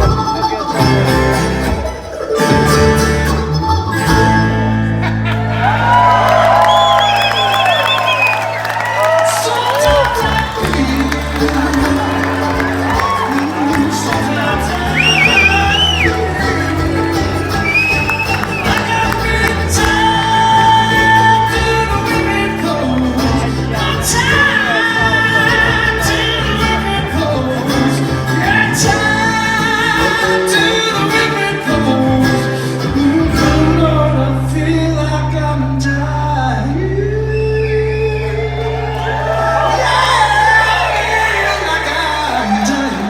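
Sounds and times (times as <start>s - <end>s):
bluegrass band playing: 0.0s - 43.0s
several voices singing: 9.4s - 33.4s.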